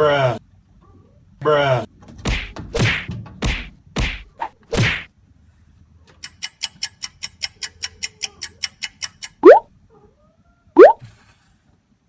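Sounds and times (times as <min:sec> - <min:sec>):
cartoon swish and whack hits: 0:10.8 - 0:11.0.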